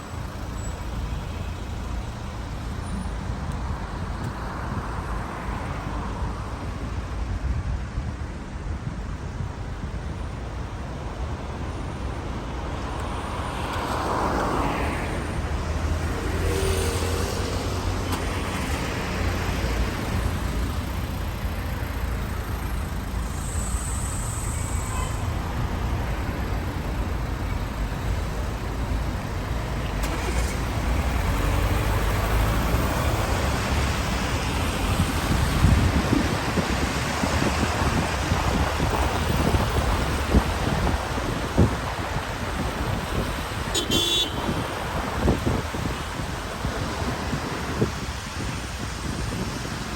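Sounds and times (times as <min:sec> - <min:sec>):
low traffic rumble: 0:00.0 - 0:49.9
vehicles passing: 0:00.0 - 0:49.9
rain hiss: 0:28.2 - 0:49.9.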